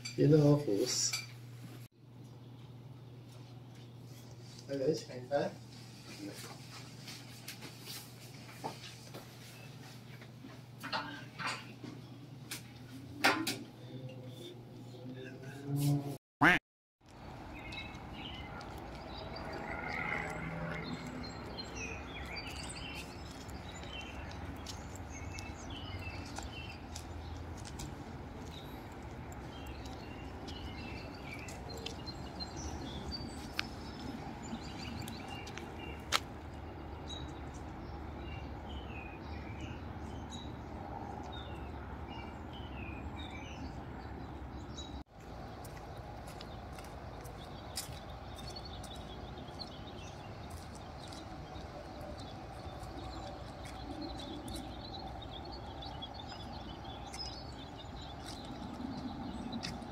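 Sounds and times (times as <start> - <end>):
outdoor background noise: 0.0 - 16.2, 17.0 - 59.9
small birds chirping: 17.1 - 59.9.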